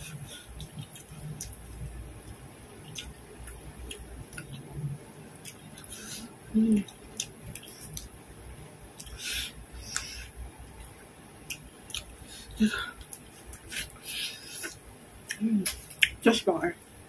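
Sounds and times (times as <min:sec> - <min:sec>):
chewing with wet mouth clicks: 0:00.5 - 0:04.7, 0:05.4 - 0:08.2, 0:09.0 - 0:09.2, 0:09.9 - 0:12.2, 0:14.6 - 0:16.2.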